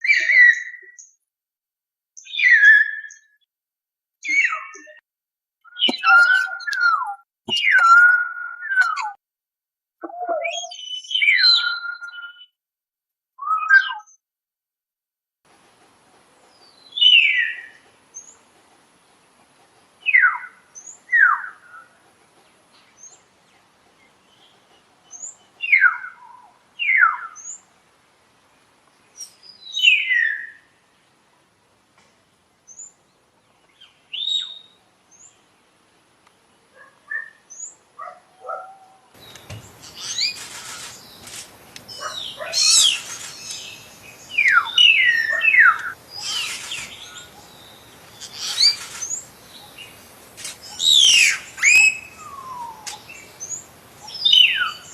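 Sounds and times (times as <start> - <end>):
background noise: 15.5 - 54.9
myna whistling calls: 39.2 - 49.9, 50.6 - 54.9.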